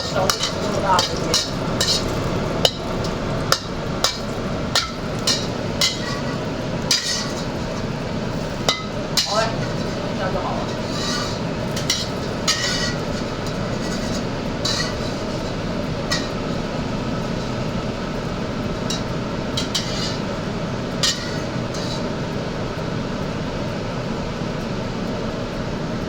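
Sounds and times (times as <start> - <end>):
metal utensil clinking on pan: 0.0 - 22.2
rushing kitchen noise: 0.0 - 23.3.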